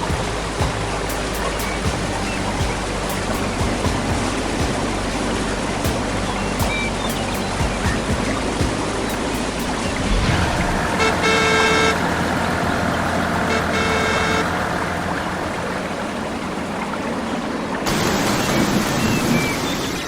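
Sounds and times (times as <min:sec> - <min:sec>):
horn tooting: 0:00.0 - 0:15.6
engine running: 0:00.0 - 0:20.0.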